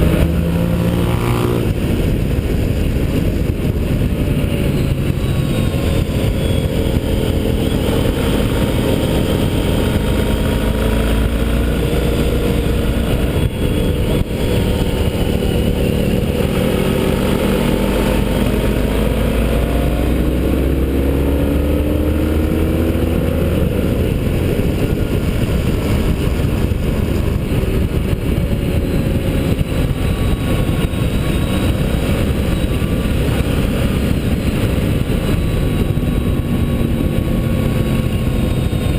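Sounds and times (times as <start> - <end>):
low rushing noise: 0.0 - 38.9
motorcycle engine accelerating: 0.0 - 38.9.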